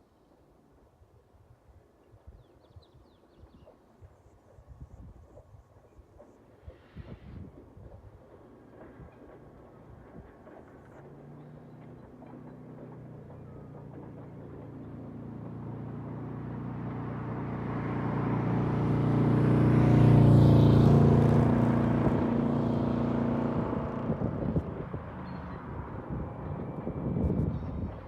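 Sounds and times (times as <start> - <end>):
diesel locomotive passing: 3.9 - 28.0.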